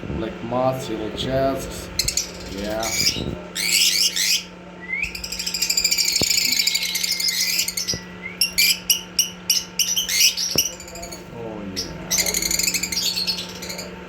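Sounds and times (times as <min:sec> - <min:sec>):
lovebird chattering: 0:02.0 - 0:04.5, 0:05.1 - 0:11.2, 0:11.8 - 0:14.0.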